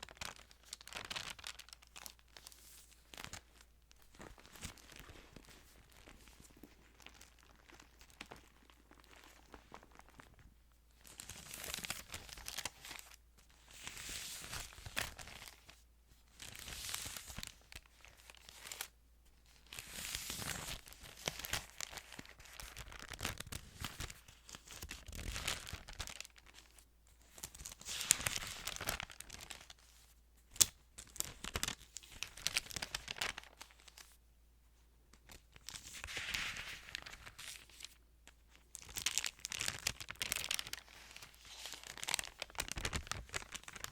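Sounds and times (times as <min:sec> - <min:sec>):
thin pages turning: 0:00.1 - 0:10.5, 0:11.1 - 0:13.2, 0:27.4 - 0:29.8, 0:30.6 - 0:34.2, 0:35.3 - 0:38.0, 0:38.8 - 0:43.9.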